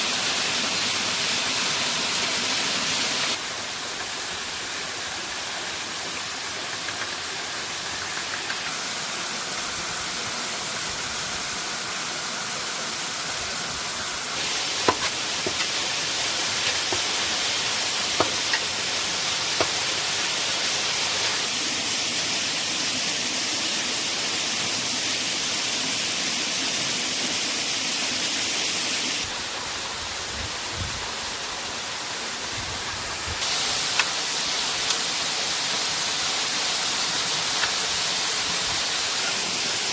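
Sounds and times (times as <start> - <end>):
waterfall rushing: 0.0 - 30.2, 33.4 - 39.9
sharp knocks: 14.8 - 15.7, 18.2 - 18.6.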